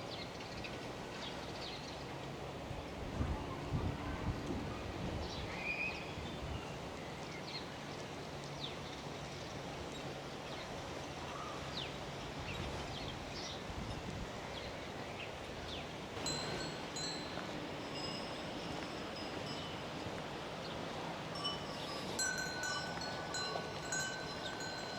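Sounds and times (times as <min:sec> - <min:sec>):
steady background hiss: 0:05.5 - 0:24.9
thin high ringing tones: 0:16.2 - 0:20.2, 0:21.3 - 0:24.9.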